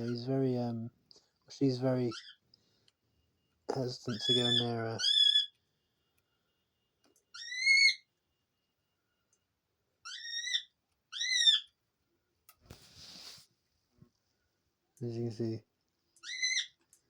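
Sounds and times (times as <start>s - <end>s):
doves squeaky whistle calls: 4.1s - 5.6s.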